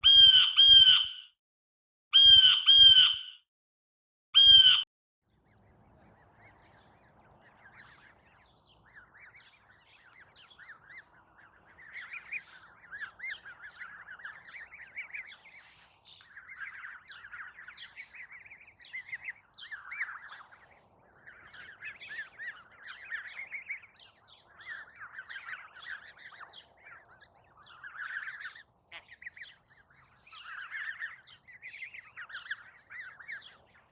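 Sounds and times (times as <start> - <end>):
harsh bird calls: 0.0 - 1.2, 2.2 - 3.3, 4.4 - 4.8
small birds twittering: 5.4 - 33.9.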